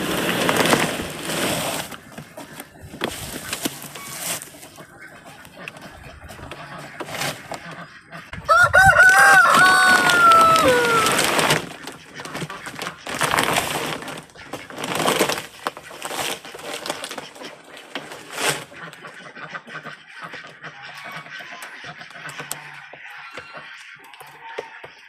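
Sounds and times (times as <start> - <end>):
noisy rustling bursts: 0.0 - 4.8, 8.6 - 17.2
rooster crowing: 8.4 - 11.4.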